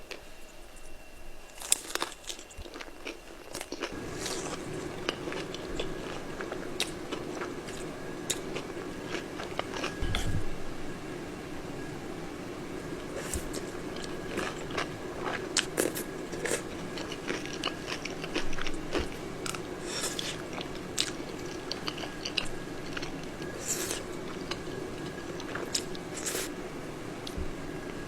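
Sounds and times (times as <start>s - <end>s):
faint steady hum: 0.0s - 28.0s
chewing crispy food: 1.5s - 10.0s, 13.0s - 26.6s.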